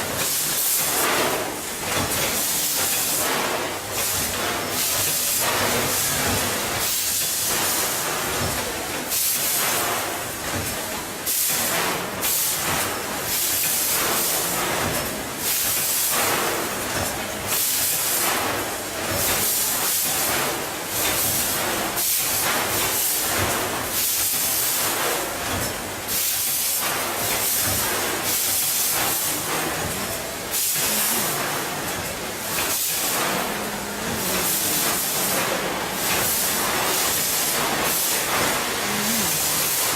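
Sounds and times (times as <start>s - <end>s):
hiss in repeated surges: 0.1s - 39.9s
packaging machine running: 22.6s - 39.9s.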